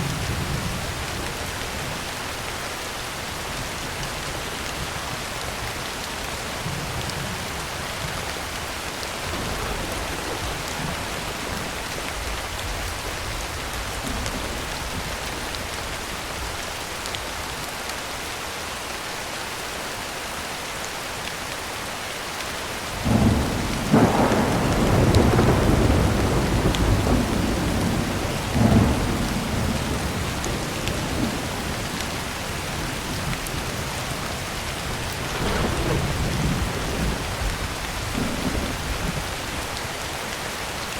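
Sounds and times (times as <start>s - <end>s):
heavy rain on a tin roof: 0.0s - 40.9s
thunder rumbling: 9.2s - 16.6s, 23.0s - 39.8s.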